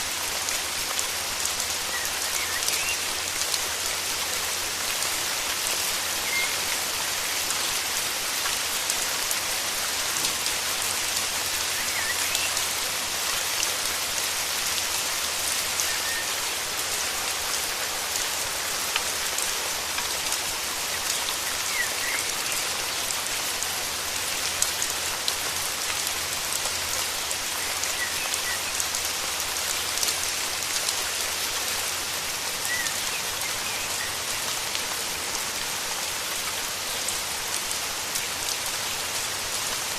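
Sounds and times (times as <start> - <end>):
heavy rain falling: 0.0 - 39.9
faint bird chirps: 1.9 - 3.0, 6.2 - 6.7, 15.8 - 16.5.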